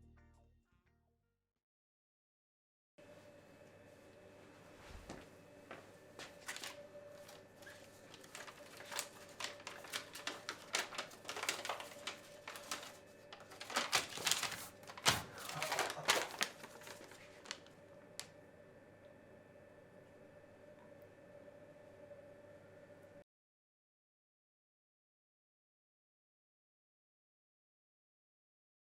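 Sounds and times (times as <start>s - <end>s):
faint steady hum: 3.0s - 23.2s.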